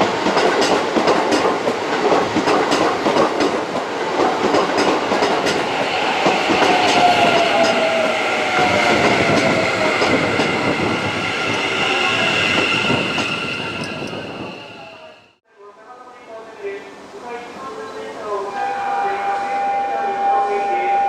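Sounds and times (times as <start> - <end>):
train wheels clattering on track: 0.0 - 14.6
train motor whine: 5.5 - 15.3.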